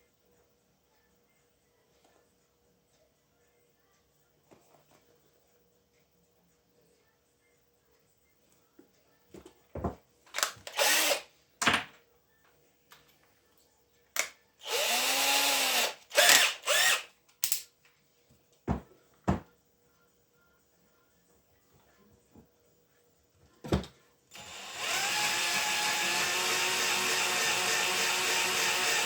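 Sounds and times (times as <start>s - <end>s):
handheld power drill bursts: 10.4s - 11.2s, 14.6s - 17.6s, 24.3s - 29.0s.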